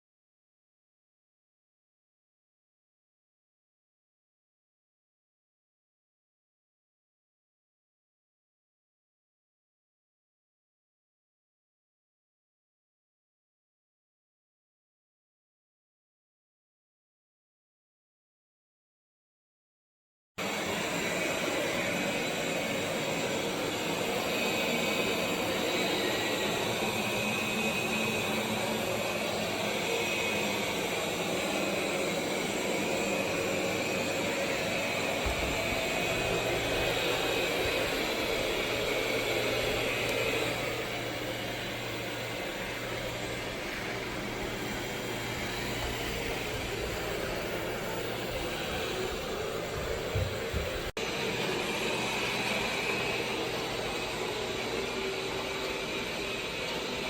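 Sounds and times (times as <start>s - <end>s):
robot vacuum whirring: 20.4s - 57.0s.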